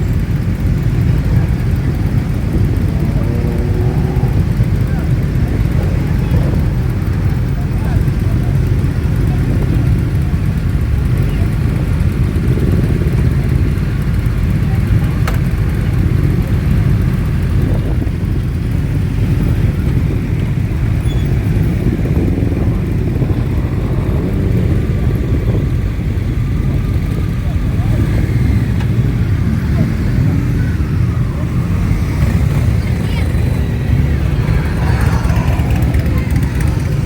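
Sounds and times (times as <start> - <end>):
motorcycle engines droning: 0.0 - 37.0.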